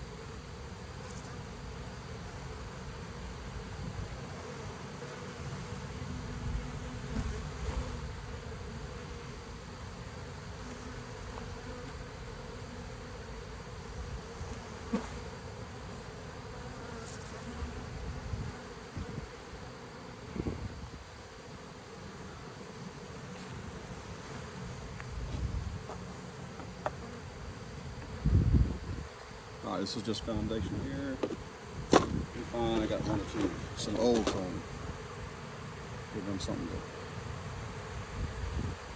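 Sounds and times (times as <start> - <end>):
bee swarm buzzing: 0.0 - 38.9
handling knocks and bumps: 31.2 - 34.6.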